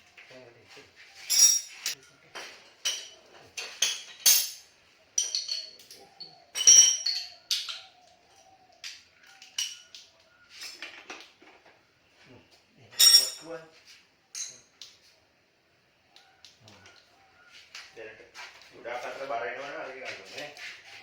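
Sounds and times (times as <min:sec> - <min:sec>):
steel tools clinking: 0:01.2 - 0:02.1, 0:02.7 - 0:08.0, 0:09.4 - 0:10.0, 0:12.9 - 0:13.5, 0:14.4 - 0:14.7.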